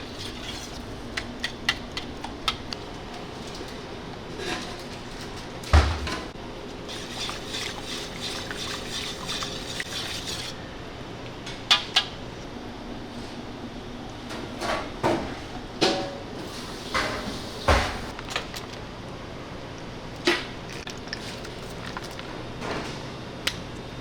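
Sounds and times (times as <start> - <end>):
dishes scraping and handling: 0.0 - 10.6.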